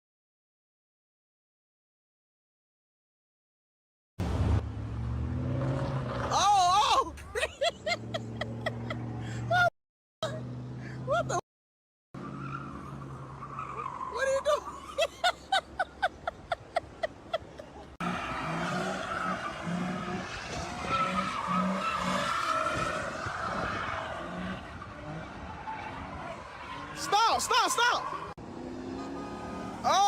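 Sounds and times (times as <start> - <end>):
car tyres squealing: 12.2 - 30.0.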